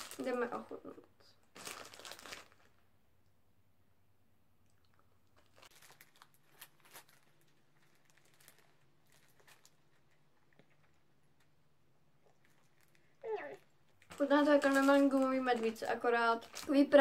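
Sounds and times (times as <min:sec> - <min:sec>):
soft crackles: 0:00.0 - 0:03.4, 0:04.6 - 0:17.0
faint chewing of sweets: 0:04.5 - 0:17.0.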